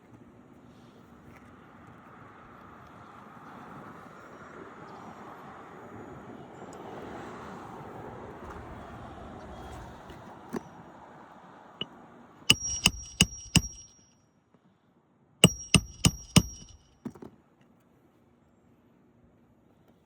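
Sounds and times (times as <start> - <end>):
light hammer taps: 12.5 - 14.0, 15.4 - 16.8
hammer striking metal: 12.5 - 14.1, 15.4 - 16.8.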